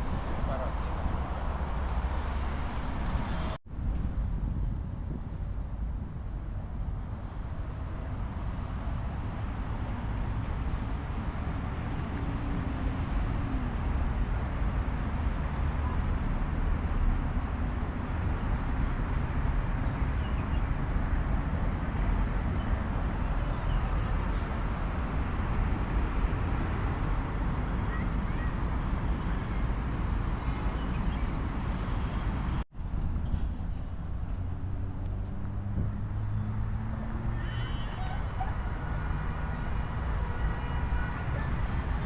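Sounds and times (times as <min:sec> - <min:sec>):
outdoor background rumble: 0:00.0 - 0:42.0.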